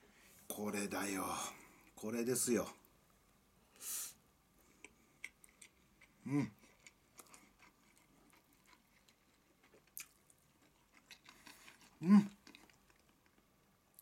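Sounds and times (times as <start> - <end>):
man chewing food: 4.6 - 14.0
man humming mm: 6.2 - 6.6, 12.0 - 12.3.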